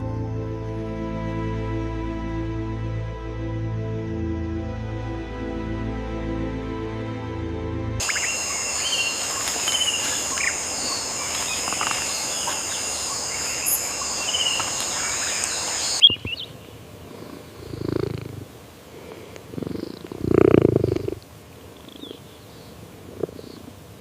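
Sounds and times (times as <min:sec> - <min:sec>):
steady high-pitched drone: 0:08.0 - 0:16.0
birds chirping: 0:08.0 - 0:23.7
low pulsing animal rumbles: 0:17.0 - 0:21.2.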